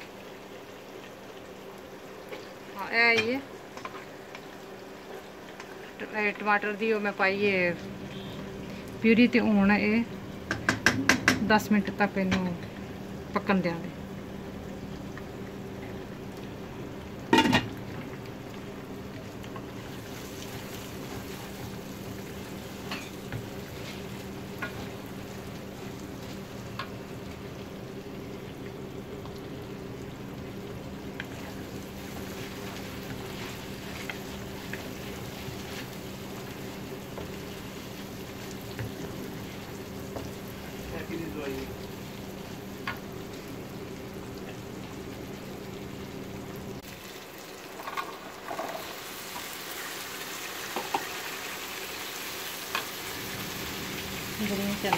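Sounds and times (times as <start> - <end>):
meat sizzling in a pan: 14.1 - 54.9.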